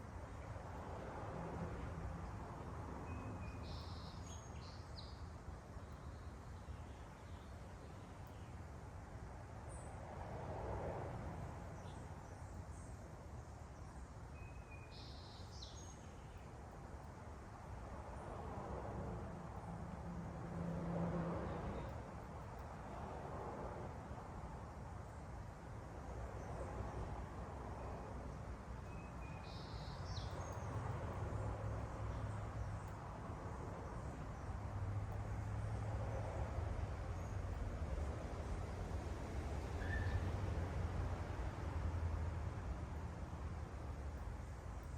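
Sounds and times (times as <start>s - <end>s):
small birds chirping: 3.1s - 8.6s, 13.8s - 16.6s, 28.8s - 34.5s
faint bird chirps: 39.8s - 40.3s.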